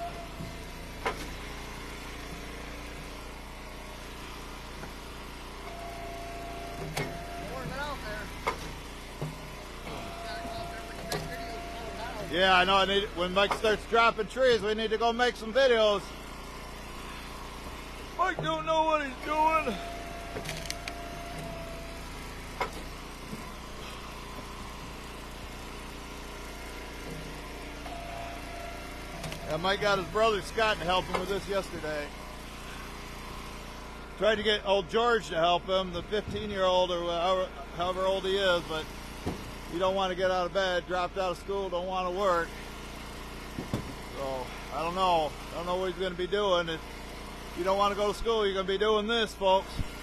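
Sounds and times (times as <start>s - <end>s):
log splitter engine running: 0.0s - 50.0s
steady whine: 4.2s - 42.6s.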